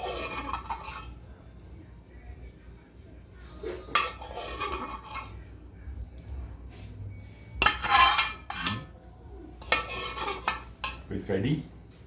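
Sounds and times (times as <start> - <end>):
metal utensils clinking on pots: 0.0 - 1.2, 3.4 - 5.5, 7.4 - 11.3
loud kitchenware clatter: 0.0 - 1.3, 3.4 - 5.5, 7.4 - 11.2.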